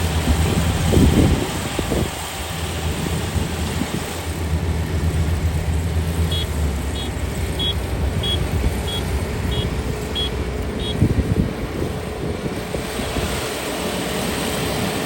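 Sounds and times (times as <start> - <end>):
diesel engine running: 0.0 - 15.0
high electronic beeps: 6.3 - 11.0.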